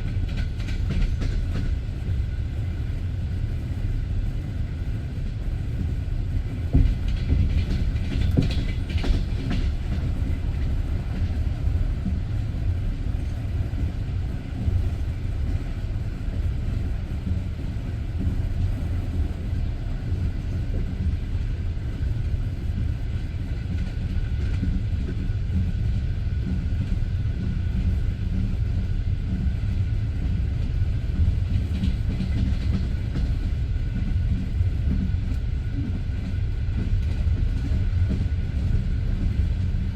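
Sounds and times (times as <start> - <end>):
train wheels rumbling on track: 0.0 - 39.9
wheels clicking over rail joints: 6.7 - 12.2.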